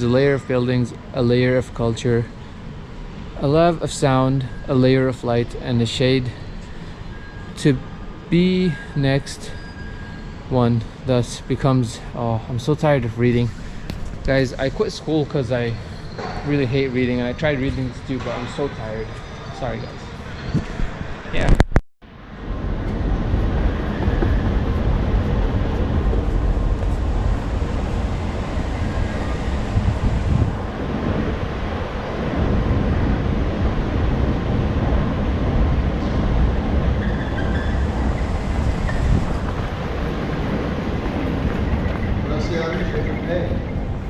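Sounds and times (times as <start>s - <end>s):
metro train rumbling and rattling: 22.2s - 44.0s.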